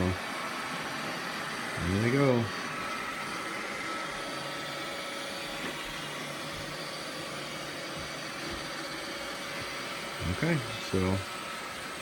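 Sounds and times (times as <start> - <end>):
robot vacuums whirring: 0.0 - 12.0.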